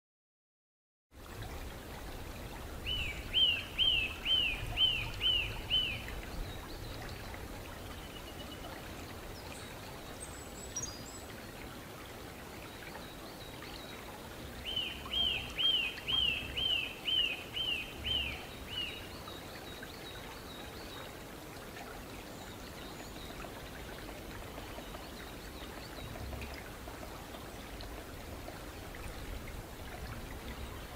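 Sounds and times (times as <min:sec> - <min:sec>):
steady background hiss: 0:01.2 - 0:30.9.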